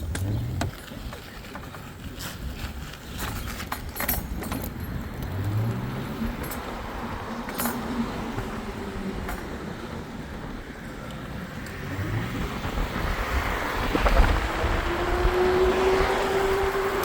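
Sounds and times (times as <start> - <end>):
sharp clicks and rattles: 0.0 - 1.9
vehicle ride rushing: 0.0 - 17.0
rising engine-like tone: 11.8 - 17.0.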